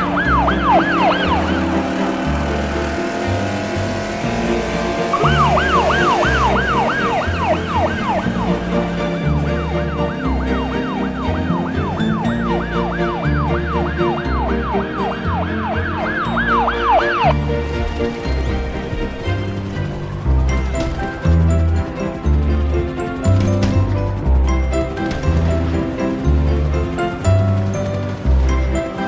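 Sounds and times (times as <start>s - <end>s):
siren yelp: 0.0s - 2.2s, 5.1s - 17.4s.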